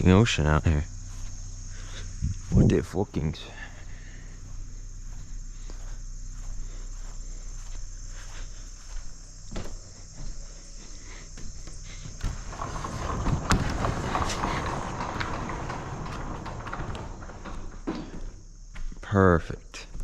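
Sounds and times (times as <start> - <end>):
crickets chirring: 0.0 - 20.0
footsteps on soggy ground: 4.4 - 12.2
short knocks: 11.4 - 18.9.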